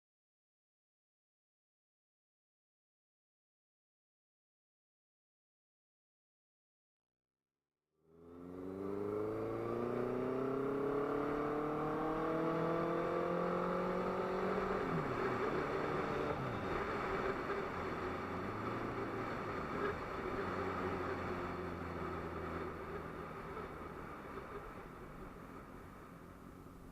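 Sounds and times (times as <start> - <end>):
motorcycle engine accelerating: 8.1 - 26.9
wind and road noise: 8.1 - 26.9.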